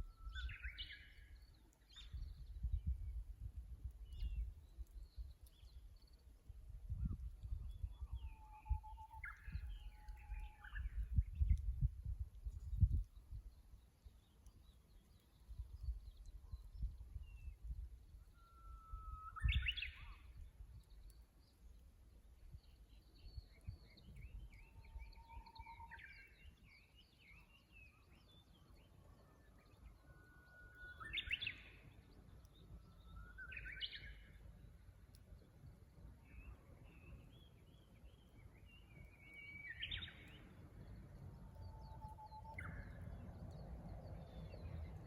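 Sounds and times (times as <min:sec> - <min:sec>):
bush warbler whistling song: 0:00.0 - 0:03.2, 0:04.0 - 0:06.2, 0:06.9 - 0:11.8, 0:18.2 - 0:21.2, 0:22.6 - 0:34.4, 0:36.2 - 0:45.0.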